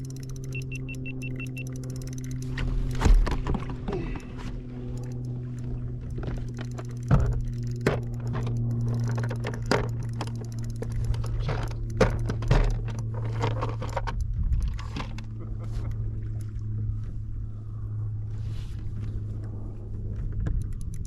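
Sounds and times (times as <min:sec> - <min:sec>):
electric motor humming: 0:00.0 - 0:14.4
sharp clicks and knocks: 0:04.9 - 0:15.4, 0:20.2 - 0:21.0.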